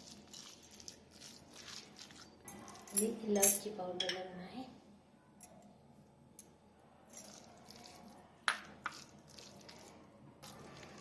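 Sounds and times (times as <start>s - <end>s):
spoon scraping bowl: 0.0s - 2.9s, 8.8s - 11.0s.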